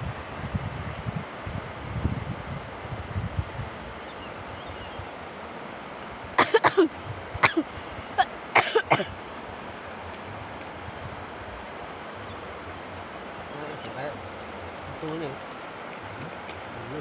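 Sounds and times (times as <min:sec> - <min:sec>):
outdoor wind hiss: 0:00.0 - 0:17.0
person coughing: 0:06.4 - 0:07.7, 0:08.6 - 0:09.1.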